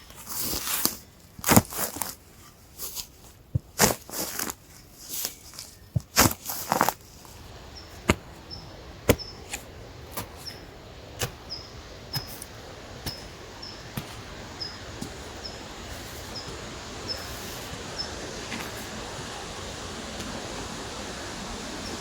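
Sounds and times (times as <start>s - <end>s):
steady background hiss: 0.0s - 22.0s
small bird chirping: 7.7s - 18.2s.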